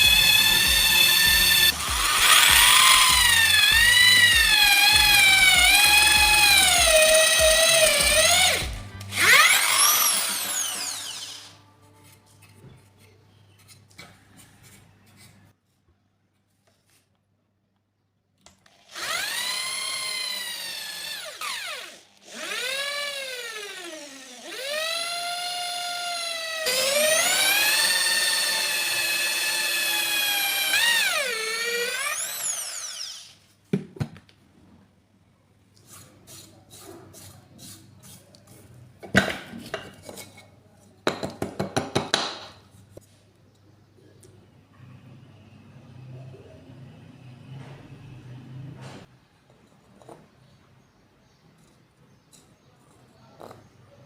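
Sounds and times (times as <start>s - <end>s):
power tool motor whining: 0.0s - 11.6s, 18.7s - 33.4s.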